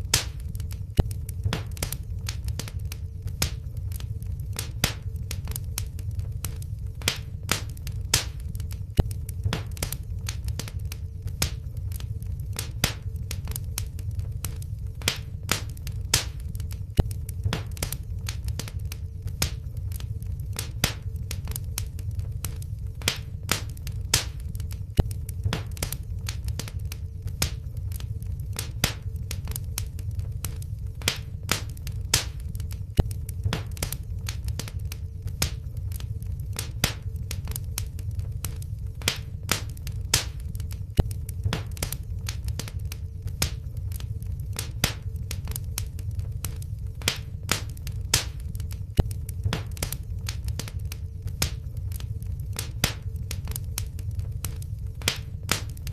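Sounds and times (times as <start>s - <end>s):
faint steady hum: 0.0s - 55.9s
wood fire crackling: 0.0s - 55.9s.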